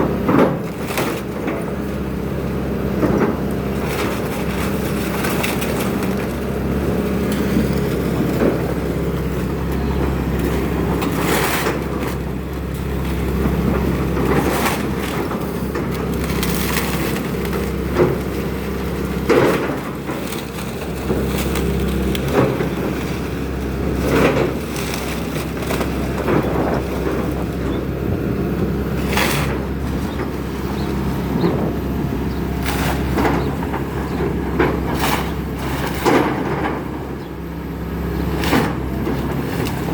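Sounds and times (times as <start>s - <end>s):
excavator diesel engine running: 0.0s - 39.9s
timber cracking and splintering: 11.0s - 27.5s.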